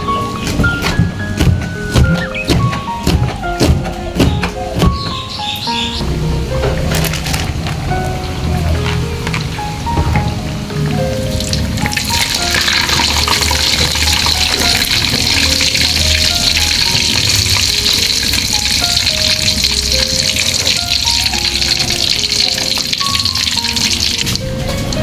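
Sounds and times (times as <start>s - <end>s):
background music: 0.0s - 25.0s
food sizzling in hot oil: 11.4s - 25.0s.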